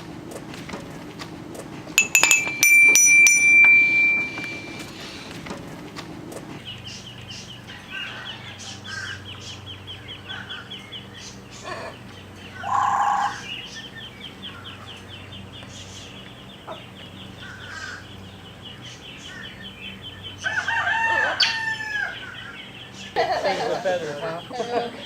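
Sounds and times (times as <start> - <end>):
low steady hum: 2.0 - 5.0.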